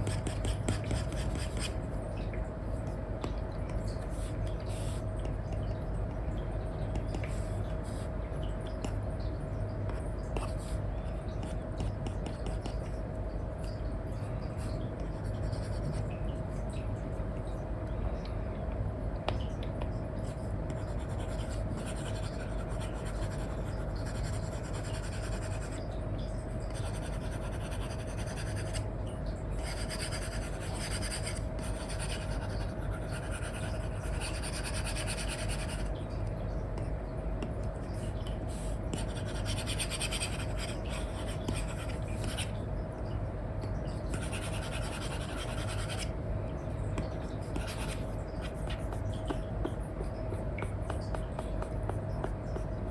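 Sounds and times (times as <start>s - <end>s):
stylus scratching on screen: 0.0s - 1.8s, 38.0s - 42.5s, 44.1s - 46.1s, 47.4s - 52.9s
steady low hum: 0.0s - 52.9s.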